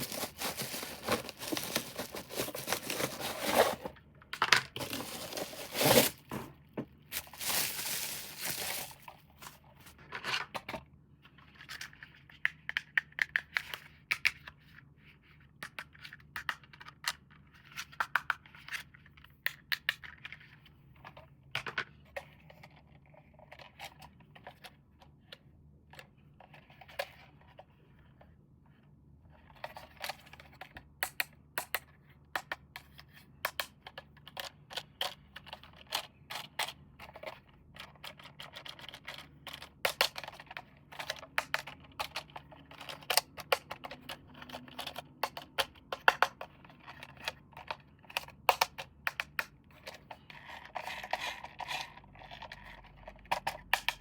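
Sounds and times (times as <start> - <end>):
packaging rustling: 0.0 - 3.9, 4.8 - 6.5, 7.1 - 9.6.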